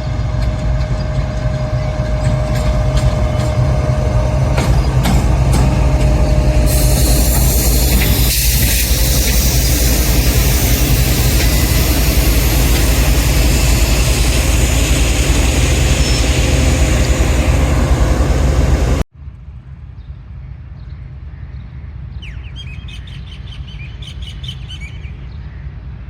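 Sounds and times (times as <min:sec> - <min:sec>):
train passing close by: 0:00.0 - 0:19.1.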